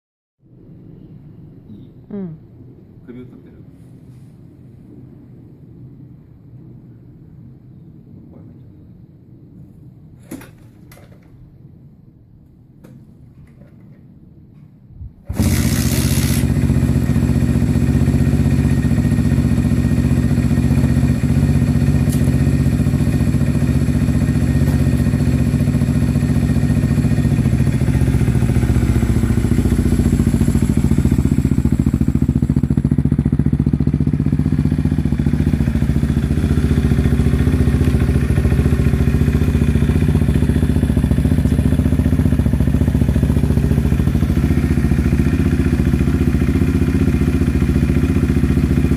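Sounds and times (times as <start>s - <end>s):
motorcycle engine starting and running: 15.2s - 48.9s.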